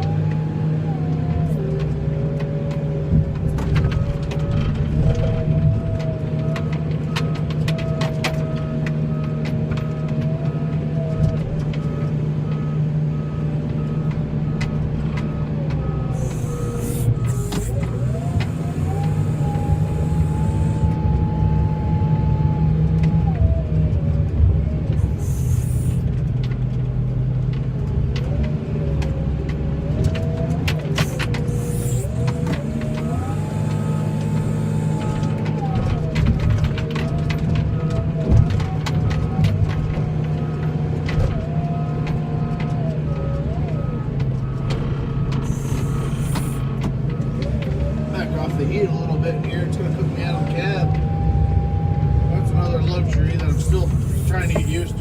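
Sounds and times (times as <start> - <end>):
heavy vehicle engine revving: 0.0 - 55.0
back-up alarm beeping: 11.2 - 22.6, 31.0 - 35.8, 44.4 - 55.0.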